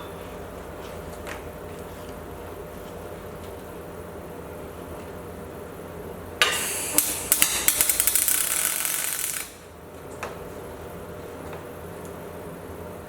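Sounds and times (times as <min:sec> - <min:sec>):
steady low hum: 0:00.0 - 0:13.0
welding arc crackling: 0:06.4 - 0:09.8.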